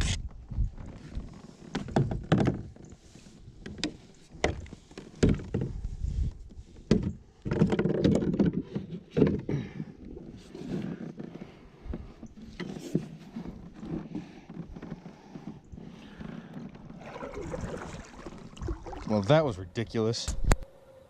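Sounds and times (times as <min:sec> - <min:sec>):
knocks and taps on kayak: 0:03.6 - 0:05.8, 0:06.9 - 0:09.5.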